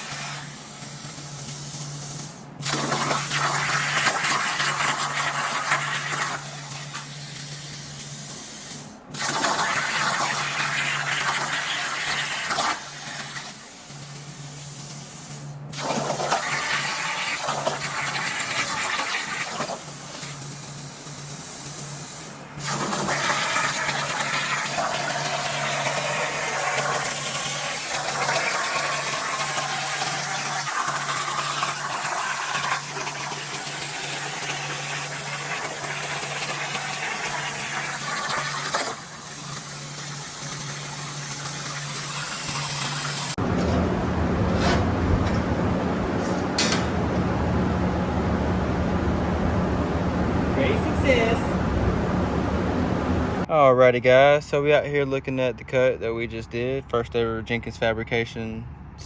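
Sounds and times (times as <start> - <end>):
plasma torch hissing: 0.0 - 43.4.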